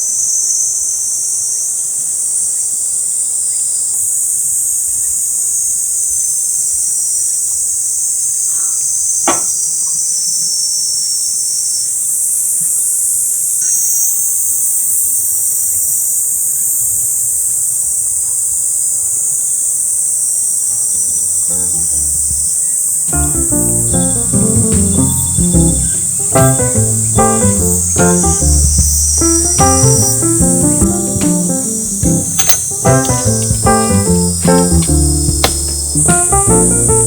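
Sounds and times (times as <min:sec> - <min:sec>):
crickets chirring: 0:00.0 - 0:37.0
acoustic guitar music: 0:21.5 - 0:37.0
sharp click: 0:31.2 - 0:33.6.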